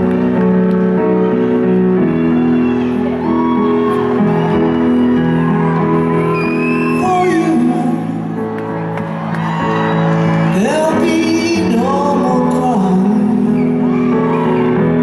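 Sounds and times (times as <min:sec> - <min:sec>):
live concert music: 0:00.0 - 0:15.0
fans whooping and whistling: 0:01.2 - 0:08.0, 0:08.7 - 0:11.3, 0:13.1 - 0:15.0.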